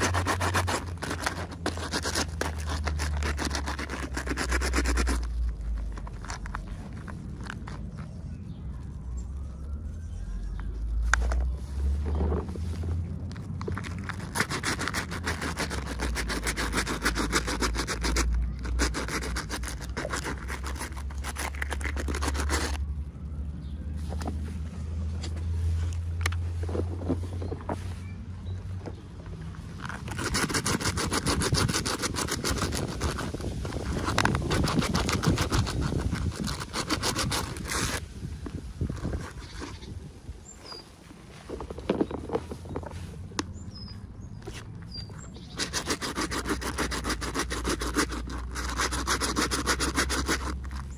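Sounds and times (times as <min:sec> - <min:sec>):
clicks and rustles of handling: 0:00.0 - 0:08.4, 0:10.6 - 0:22.8, 0:24.0 - 0:39.9, 0:40.6 - 0:43.6
packaging scratching and scraping: 0:00.0 - 0:22.9, 0:29.4 - 0:43.3, 0:44.4 - 0:50.9.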